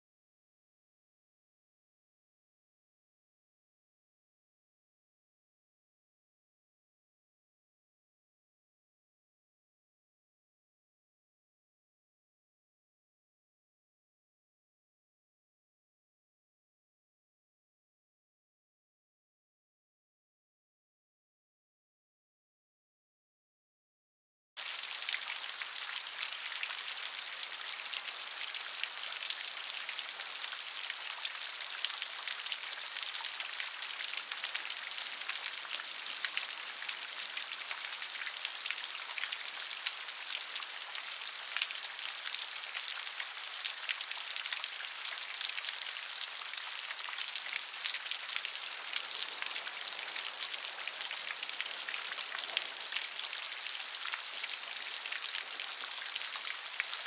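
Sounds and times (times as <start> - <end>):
rain pattering on a surface: 24.6 - 57.0.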